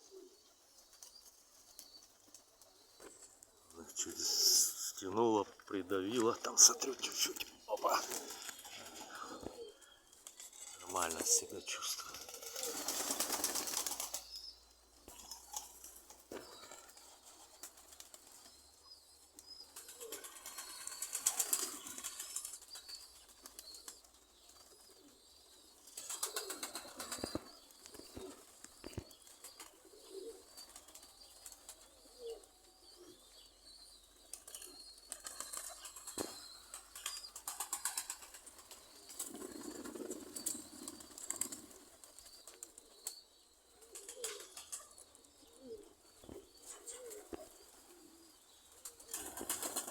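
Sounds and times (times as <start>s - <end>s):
pigeon wings fluttering: 7.0s - 14.4s, 19.8s - 24.7s, 25.9s - 29.8s, 34.4s - 42.8s, 43.9s - 44.8s, 48.7s - 49.9s.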